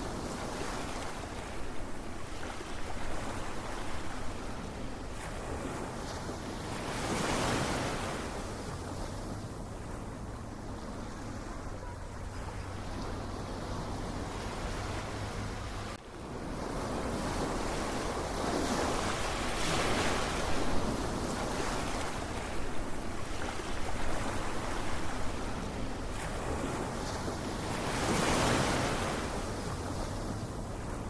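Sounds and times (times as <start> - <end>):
ocean waves breaking on shore: 0.0 - 31.0.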